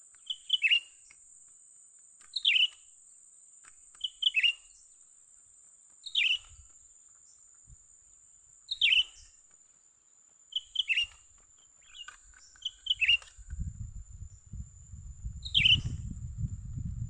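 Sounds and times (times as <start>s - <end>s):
high insect whine: 0.0s - 17.0s
bird calling: 0.2s - 1.2s, 2.3s - 2.9s, 3.9s - 4.8s, 6.0s - 7.4s, 8.7s - 9.4s, 10.5s - 13.5s.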